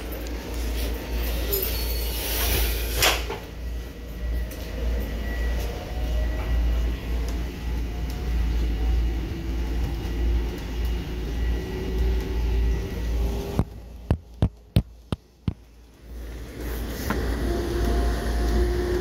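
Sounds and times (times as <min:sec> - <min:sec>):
faint whine: 0:00.0 - 0:14.4
electric railcar rumble and hum: 0:00.0 - 0:19.0.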